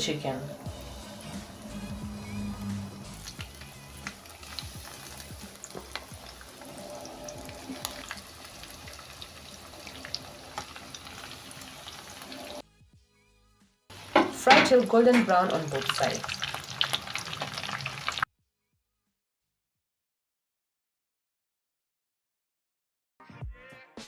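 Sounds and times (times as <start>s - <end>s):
chicken frying in hot oil: 0.0s - 12.6s, 13.9s - 18.3s
oil popping and crackling: 0.6s - 12.6s, 13.9s - 18.3s.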